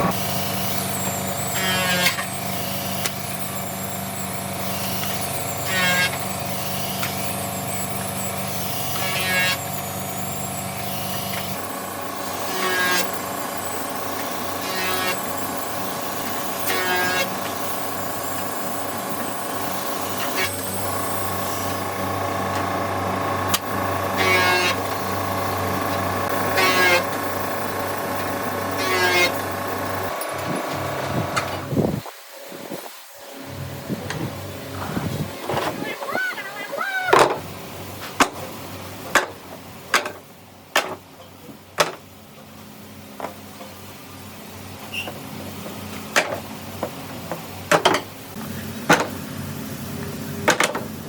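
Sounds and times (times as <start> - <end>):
rasping cutting bursts: 0.0 - 31.8
woodworking machine motor hum: 0.0 - 31.8.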